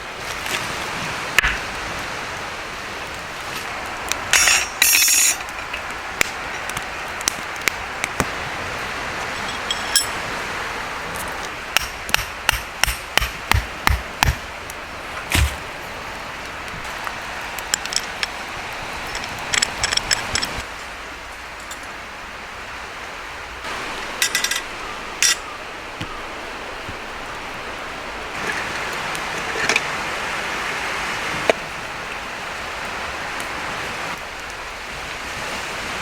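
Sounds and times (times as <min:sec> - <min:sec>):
sea surf: 0:00.0 - 0:36.0
wind: 0:00.0 - 0:36.0
camp gear knocks and clinks: 0:04.3 - 0:08.3, 0:09.2 - 0:10.2, 0:17.6 - 0:18.4, 0:19.0 - 0:20.6, 0:24.1 - 0:25.4.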